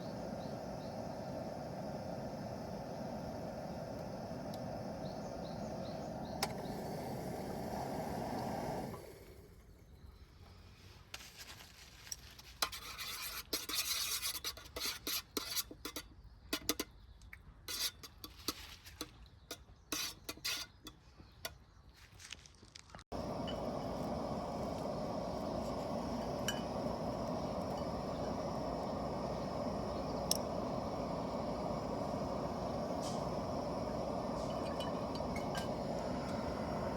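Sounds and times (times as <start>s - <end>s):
steady rushing noise: 23.1s - 36.9s.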